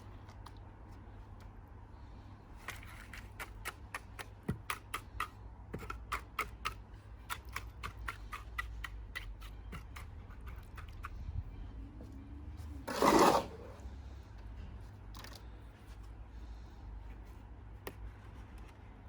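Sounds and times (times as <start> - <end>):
tool clicking on cement: 2.7 - 11.1.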